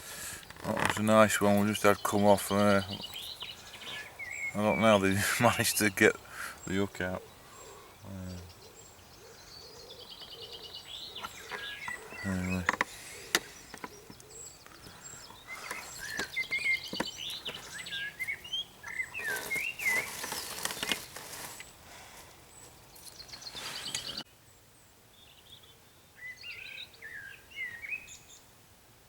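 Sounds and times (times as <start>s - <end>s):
rustling: 0.0s - 7.9s, 9.9s - 24.2s
songbirds chirping and singing: 0.0s - 24.2s, 25.2s - 28.4s.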